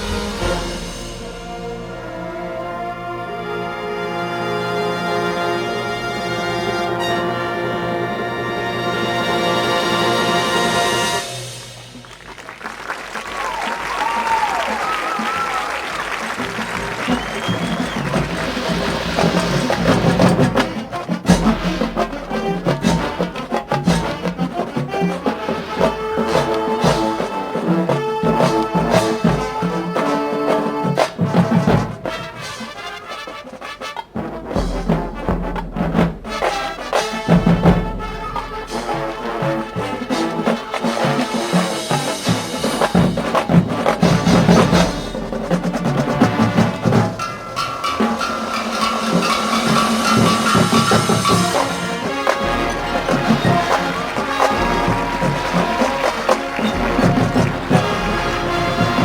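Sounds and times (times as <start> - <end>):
drum hits: 0.0 - 2.5, 14.0 - 30.0, 34.1 - 59.0
brass chords: 0.0 - 12.2, 15.8 - 59.0
marching band playing: 0.0 - 59.0.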